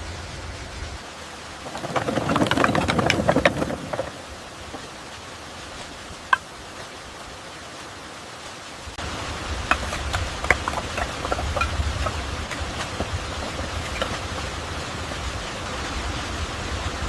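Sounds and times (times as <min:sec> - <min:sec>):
falling water rushing: 0:00.0 - 0:17.0.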